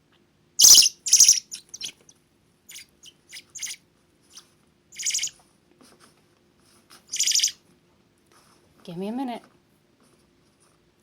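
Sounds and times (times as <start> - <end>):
young bird begging chirps: 0.6 - 2.0, 2.7 - 3.8, 5.0 - 5.3, 7.1 - 7.6.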